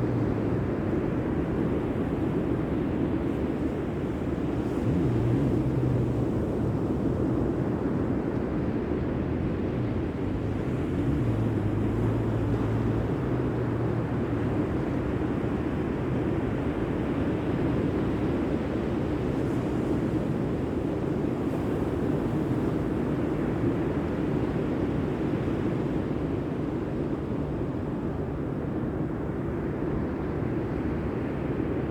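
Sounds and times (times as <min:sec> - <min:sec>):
low engine hum: 0:00.0 - 0:31.9
wind: 0:00.0 - 0:31.9.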